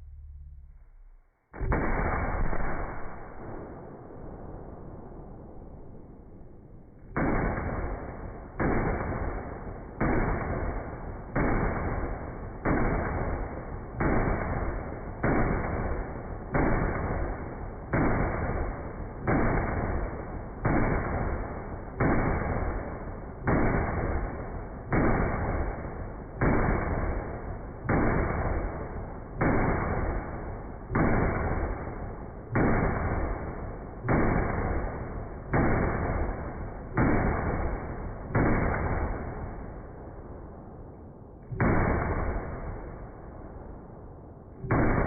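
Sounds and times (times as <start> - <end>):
booms with rumbling tail: 0.0 - 8.0.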